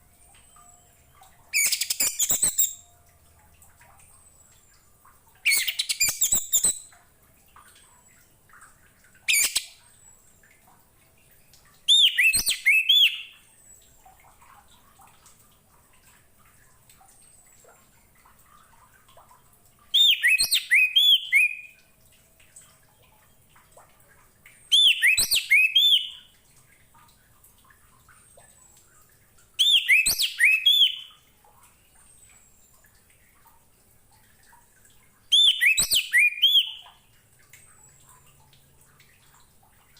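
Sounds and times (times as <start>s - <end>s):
thrush singing whistled notes: 1.5s - 2.9s, 5.5s - 6.9s, 11.9s - 13.4s, 20.0s - 21.8s, 24.7s - 26.3s, 29.6s - 31.1s, 35.3s - 36.9s.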